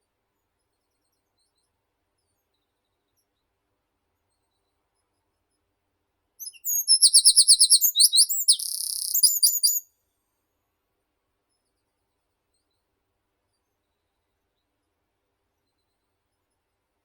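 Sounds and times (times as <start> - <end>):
songbird singing: 6.4 - 9.8.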